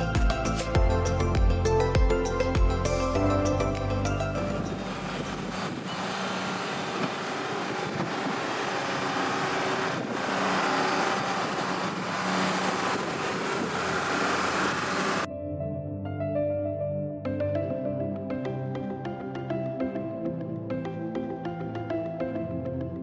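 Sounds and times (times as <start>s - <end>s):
music: 0.0s - 5.9s, 15.3s - 23.0s
backhoe loader running: 3.6s - 15.3s.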